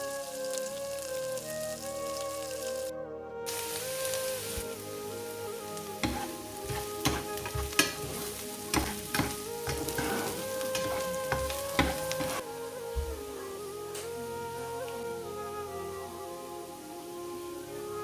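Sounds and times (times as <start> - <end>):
soft background music: 0.0 - 18.0
food sizzling in a pan: 3.5 - 12.5
utensil knocking against pan: 6.0 - 12.4.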